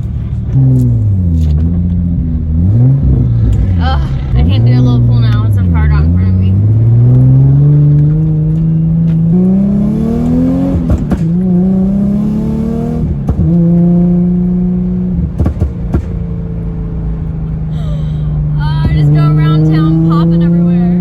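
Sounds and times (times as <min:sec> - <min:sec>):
car engine accelerating: 0:00.0 - 0:21.0
exhaust pops: 0:10.7 - 0:11.6, 0:13.1 - 0:13.8, 0:15.2 - 0:16.7.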